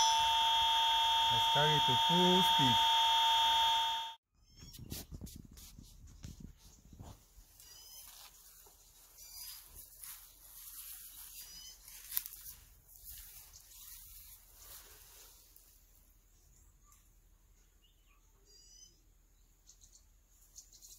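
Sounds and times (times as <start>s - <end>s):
bird calling: 11.2s - 12.1s.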